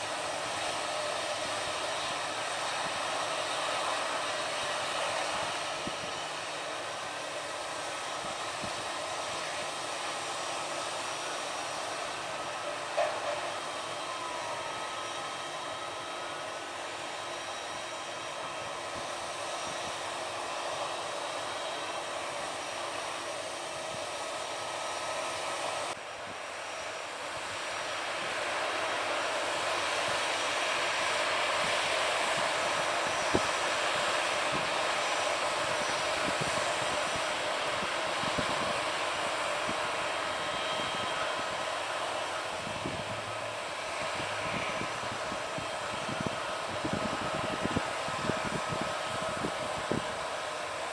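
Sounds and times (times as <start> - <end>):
jet turbine engines running: 0.0 - 50.9.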